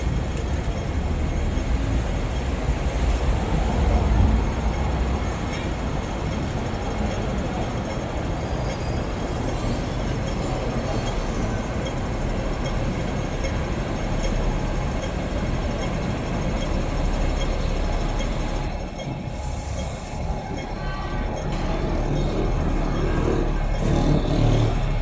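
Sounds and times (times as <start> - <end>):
large vehicle engine rumble: 0.0 - 25.0.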